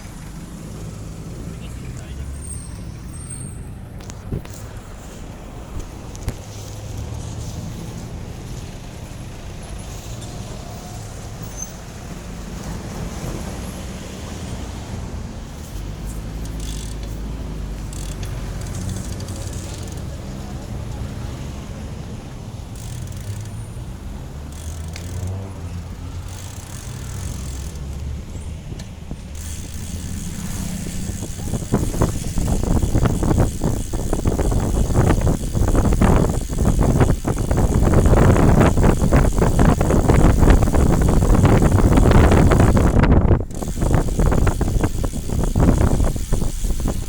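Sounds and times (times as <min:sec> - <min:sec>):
vehicle engine running low: 0:17.1 - 0:47.0
wind gusting on microphone: 0:20.1 - 0:47.0
dense rattling: 0:24.7 - 0:47.0.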